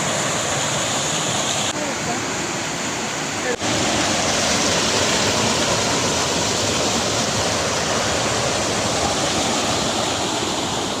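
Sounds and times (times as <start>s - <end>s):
heavy rain pouring: 3.4s - 11.0s.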